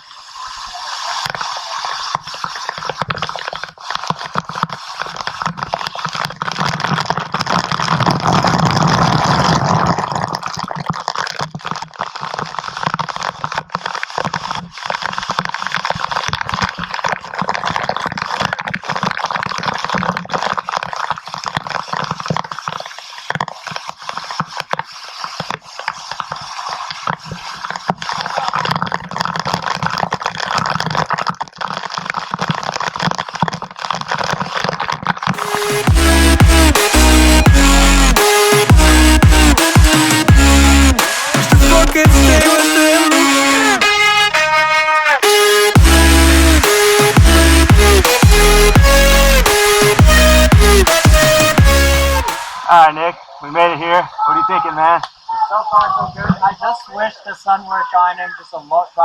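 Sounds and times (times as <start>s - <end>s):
rushing water: 0.0s - 21.0s, 34.6s - 55.7s.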